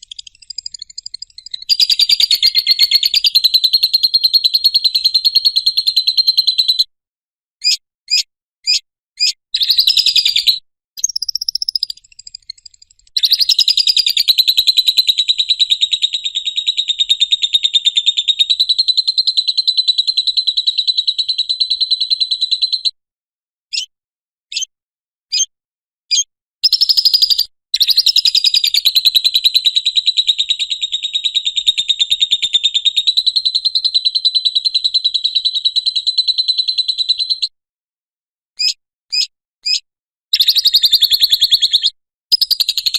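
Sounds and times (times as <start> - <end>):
short sharp bird chirps: 0.0 - 4.6, 7.6 - 17.3, 23.7 - 23.9, 24.5 - 24.7, 26.1 - 28.8, 38.6 - 42.9
lovebird chattering trills: 0.0 - 5.0, 8.7 - 18.8.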